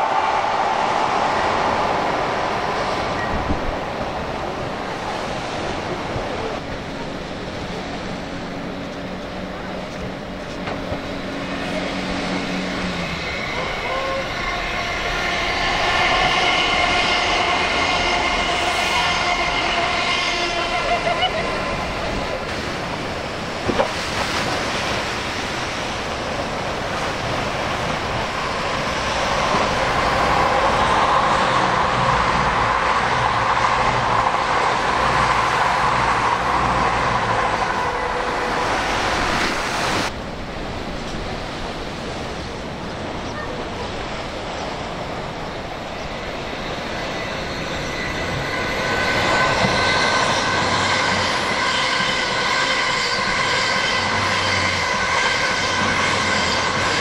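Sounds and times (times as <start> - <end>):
passing train rumble: 0.0 - 57.0
train whine: 0.0 - 57.0.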